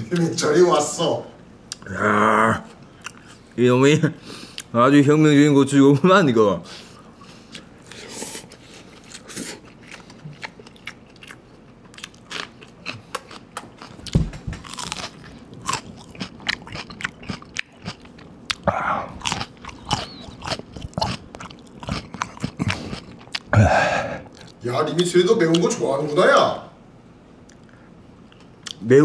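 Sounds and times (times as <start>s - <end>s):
crunching raw chili pepper: 8.9s - 23.5s.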